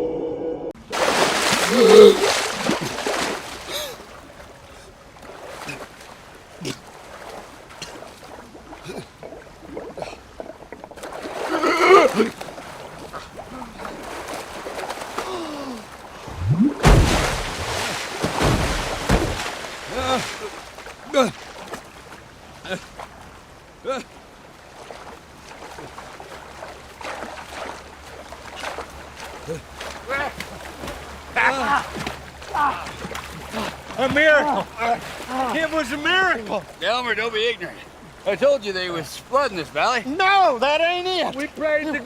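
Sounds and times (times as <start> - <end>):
water splashing: 0.8 - 42.0
water gurgling and bubbling: 16.2 - 17.9.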